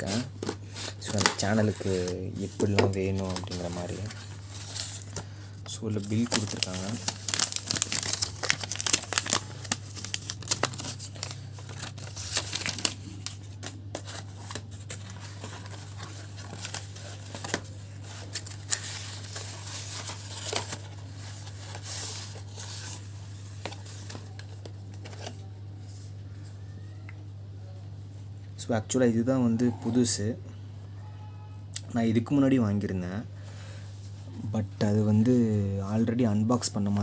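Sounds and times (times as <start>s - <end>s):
packaging crinkling and tearing: 0.0s - 25.5s.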